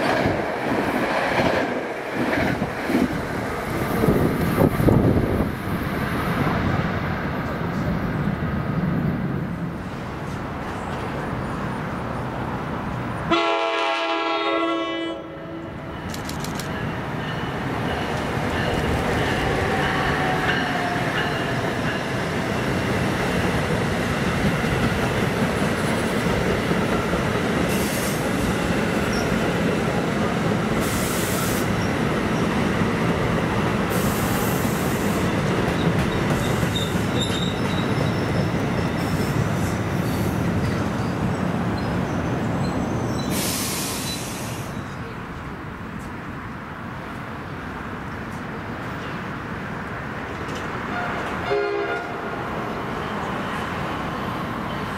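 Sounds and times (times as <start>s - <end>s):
train horn blast: 13.3s - 15.8s, 50.9s - 52.3s
train wheels clattering on rails: 15.9s - 44.6s.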